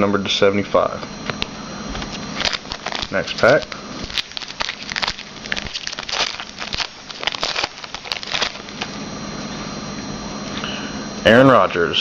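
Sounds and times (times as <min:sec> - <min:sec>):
foil wrapper tearing and crinkling: 0:02.4 - 0:09.0.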